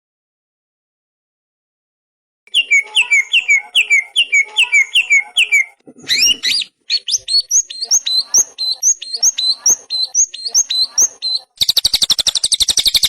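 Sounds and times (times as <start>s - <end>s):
songbird calling: 2.5s - 13.0s.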